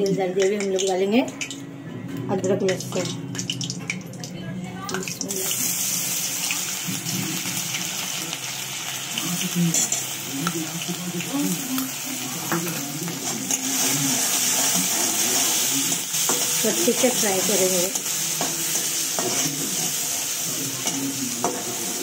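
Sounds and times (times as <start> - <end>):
paste sizzling in hot oil: 5.2 - 22.0.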